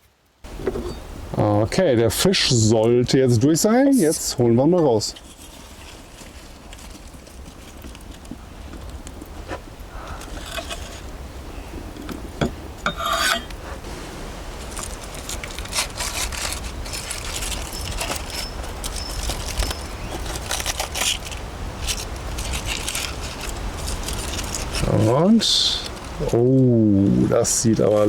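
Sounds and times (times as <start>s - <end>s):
aluminium foil crinkling: 4.9s - 9.4s, 10.0s - 11.2s, 14.5s - 26.3s.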